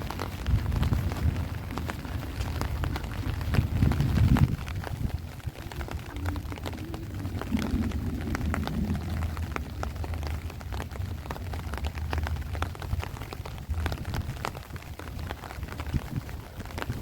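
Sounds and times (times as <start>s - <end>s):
heavy rain falling: 0.0s - 17.0s
low rumble of wind: 0.0s - 17.0s
raindrops hitting close by: 0.0s - 17.0s.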